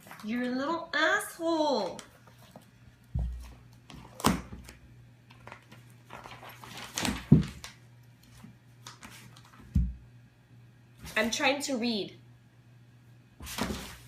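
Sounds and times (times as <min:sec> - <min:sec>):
thumps and paper rustles: 0:02.2 - 0:10.0, 0:13.4 - 0:14.0
cat pawing at paper: 0:13.4 - 0:14.0.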